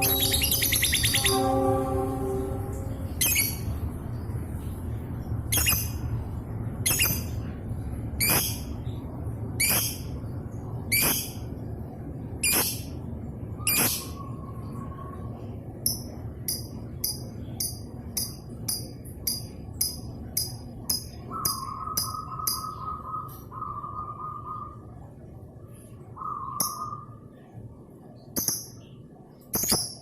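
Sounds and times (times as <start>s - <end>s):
lovebird chirps: 0.0s - 1.6s, 3.2s - 3.7s, 5.5s - 6.0s, 6.8s - 7.4s, 8.2s - 8.8s, 9.6s - 10.1s, 10.9s - 11.4s, 12.4s - 12.9s, 13.6s - 14.6s, 15.8s - 24.8s, 26.2s - 27.2s
long whistled notes: 0.0s - 3.6s.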